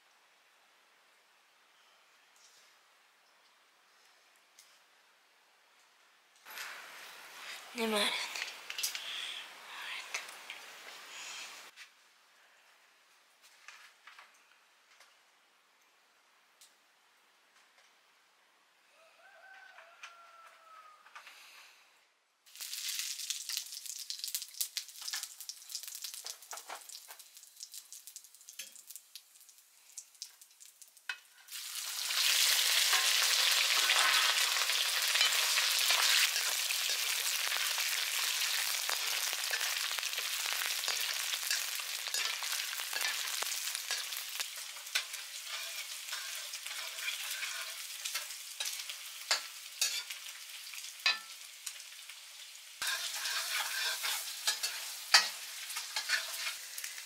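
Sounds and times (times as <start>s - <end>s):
food sizzling in a pan: 6.5s - 11.8s, 22.5s - 57.0s.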